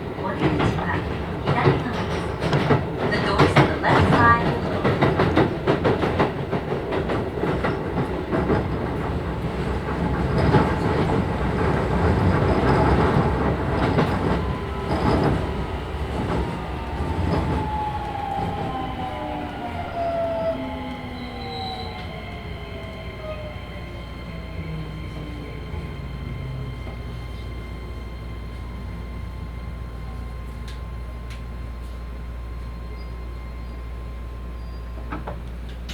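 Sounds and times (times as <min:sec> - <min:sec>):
train wheels clattering over rail joints: 0:00.2 - 0:19.6.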